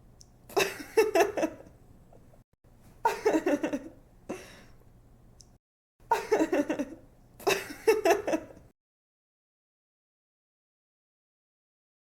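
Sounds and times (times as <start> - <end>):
young woman laughing: 0.5 - 1.7, 3.0 - 4.6, 6.1 - 8.7.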